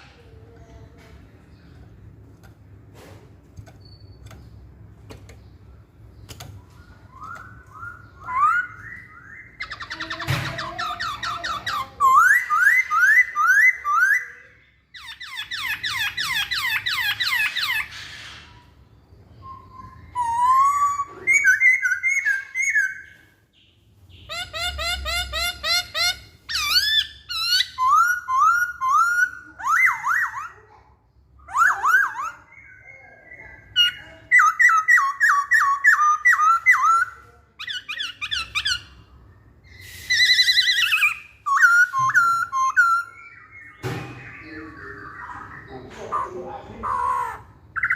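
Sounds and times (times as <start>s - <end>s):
bird singing whistled phrases: 6.8s - 14.4s, 19.4s - 23.1s, 39.7s - 45.7s.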